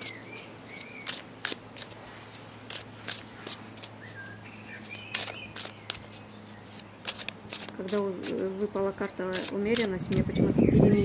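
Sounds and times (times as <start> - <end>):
steady low hum: 0.0 - 11.0
cards clicking and tapping: 5.1 - 8.4.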